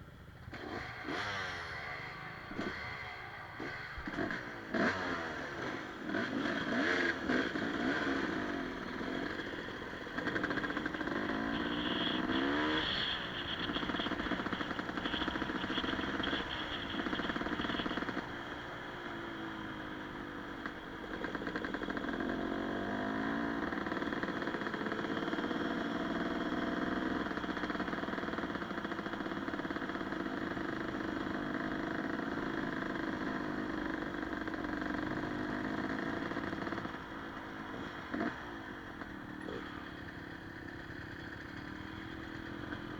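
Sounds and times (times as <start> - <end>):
dirt bike engine revving: 0.4 - 42.9.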